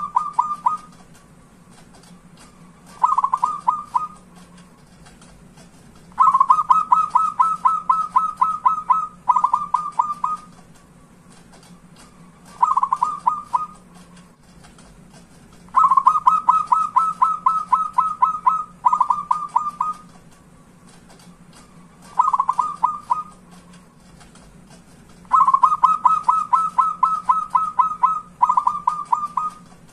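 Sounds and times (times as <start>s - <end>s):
dove cooing in rapid staccato: 0.0s - 1.0s, 2.8s - 4.3s, 6.1s - 10.6s, 12.5s - 13.9s, 15.7s - 20.1s, 22.0s - 23.4s, 25.3s - 29.7s.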